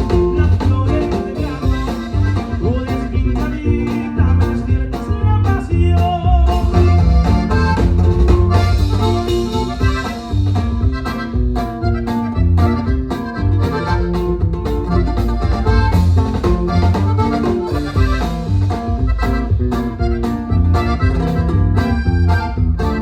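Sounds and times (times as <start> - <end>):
accordion: 0.0 - 23.0
electric bass line: 0.0 - 23.0
steady drum beat: 0.0 - 23.0.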